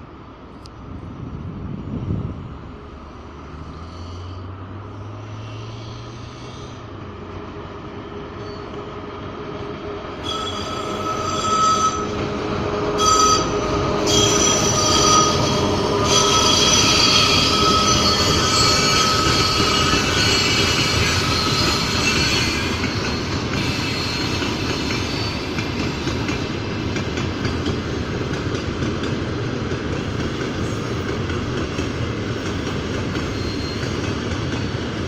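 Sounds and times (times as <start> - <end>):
freight train rolling past: 0.0 - 35.0
wagon wheels squealing: 10.2 - 12.2, 13.0 - 26.2, 32.6 - 34.4.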